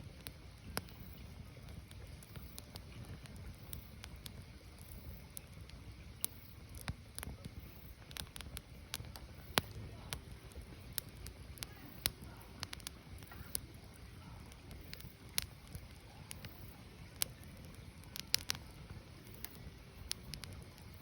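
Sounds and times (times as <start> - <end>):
firewood crackling and popping: 0.0 - 21.0.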